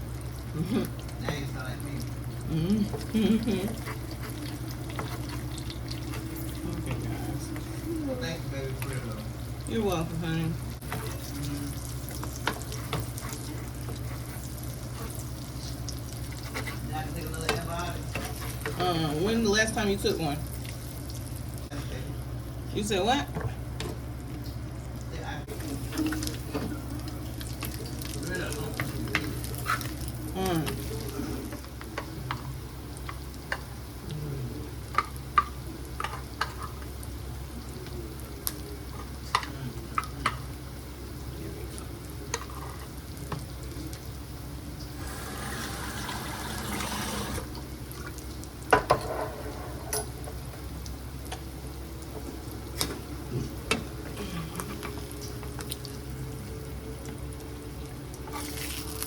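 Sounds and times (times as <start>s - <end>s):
food sizzling in frying pan: 0.0s - 59.0s.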